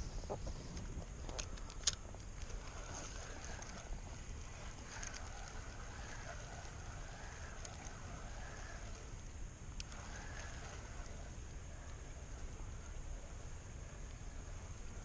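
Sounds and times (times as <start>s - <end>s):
wind rumbling on microphone: 0.0s - 15.0s
light clicks: 0.7s - 2.8s.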